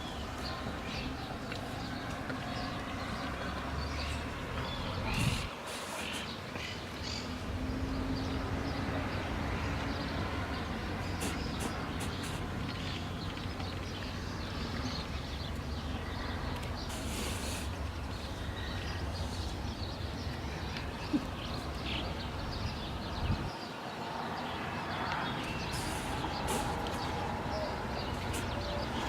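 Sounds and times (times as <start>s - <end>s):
swallows twittering: 9.9s - 29.0s.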